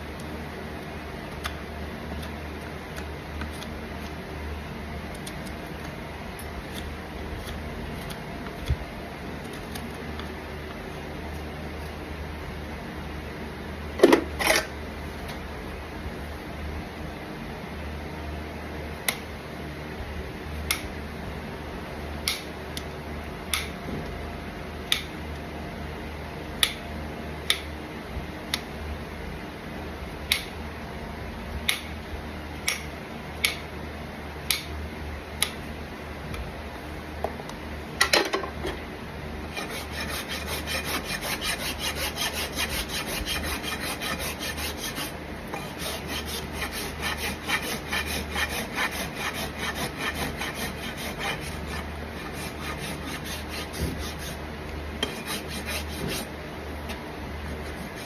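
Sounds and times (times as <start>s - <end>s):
hoof rasp scraping: 39.5s - 54.4s, 55.0s - 56.3s.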